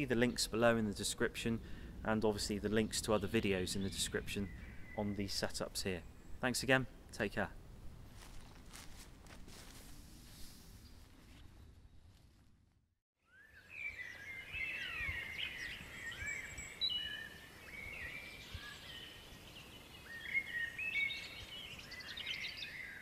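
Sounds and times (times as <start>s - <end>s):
small birds chirping: 0.0s - 7.5s, 13.2s - 23.0s
low steady background noise: 0.0s - 9.8s.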